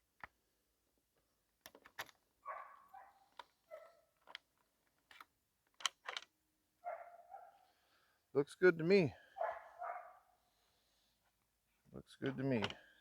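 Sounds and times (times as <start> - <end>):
distant dog barking: 2.4 - 4.0, 6.8 - 7.7, 9.2 - 10.3.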